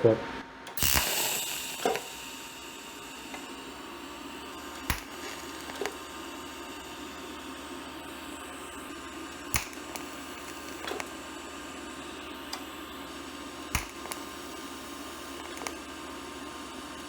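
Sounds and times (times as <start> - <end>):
welding arc buzzing hiss: 0.7 - 17.0
sharp clicks: 4.7 - 6.0, 9.4 - 11.2, 13.7 - 14.3, 15.4 - 15.8.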